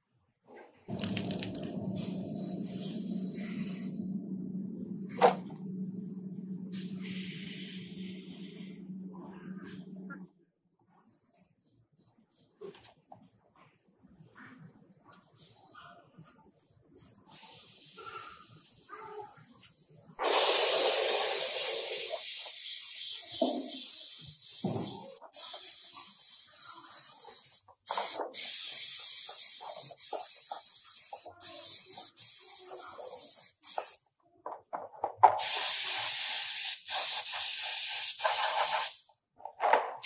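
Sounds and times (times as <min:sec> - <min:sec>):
compressed-air spray hissing: 0:01.0 - 0:04.3, 0:06.7 - 0:08.9, 0:20.2 - 0:34.0, 0:35.4 - 0:39.1.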